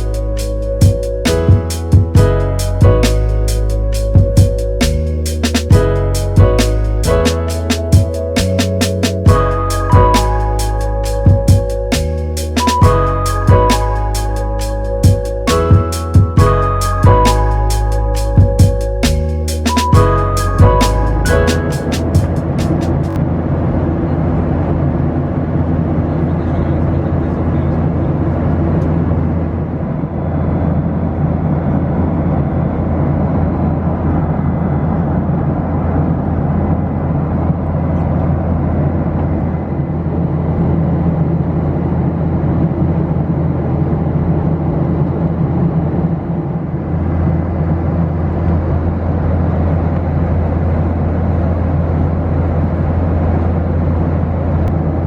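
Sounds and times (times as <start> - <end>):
deep hum: 0.0 - 23.2
airliner cabin engine drone: 0.0 - 55.0.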